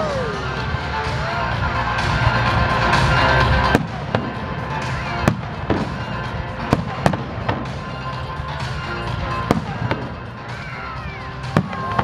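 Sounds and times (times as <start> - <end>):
music: 0.0 - 12.0
fireworks bangs: 3.1 - 10.2, 11.4 - 12.0.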